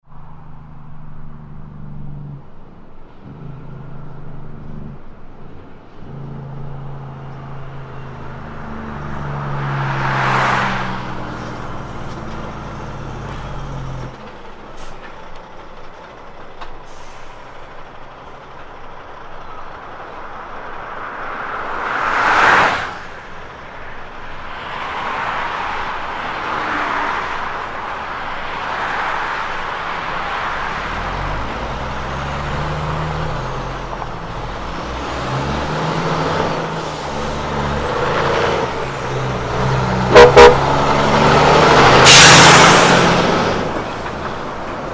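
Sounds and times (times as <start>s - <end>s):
engine and road noise: 0.0s - 44.9s
passing traffic: 0.0s - 44.9s
truck engine brake drone: 30.8s - 44.9s.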